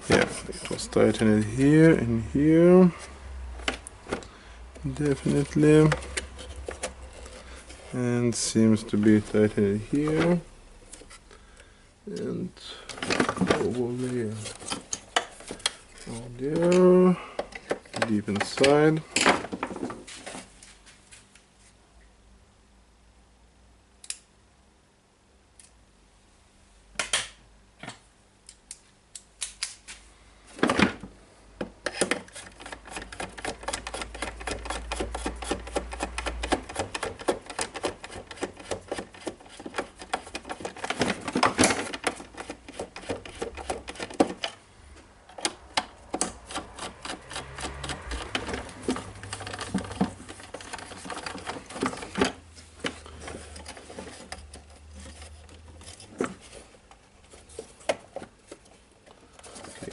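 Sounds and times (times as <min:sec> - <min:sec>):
clicking of plastic and metal parts: 0:03.6 - 0:07.4, 0:12.2 - 0:19.7, 0:31.6 - 0:44.6, 0:45.3 - 0:59.9.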